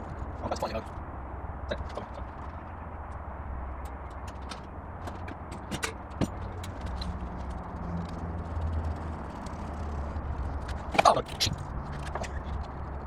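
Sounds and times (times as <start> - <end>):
tools and metal parts clicking: 3.8 - 13.0.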